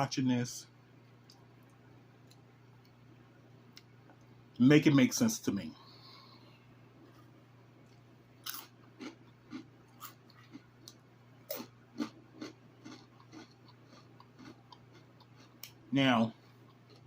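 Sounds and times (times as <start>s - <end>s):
person chewing crunchy food: 7.9s - 17.0s.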